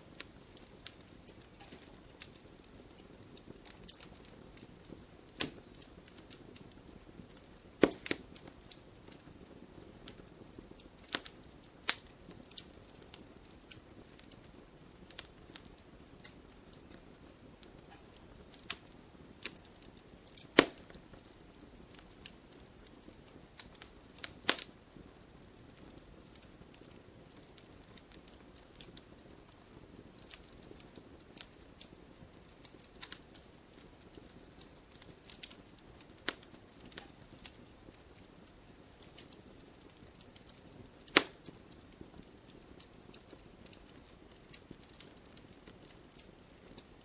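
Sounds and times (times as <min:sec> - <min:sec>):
campfire crackling and popping: 0:00.0 - 0:47.0.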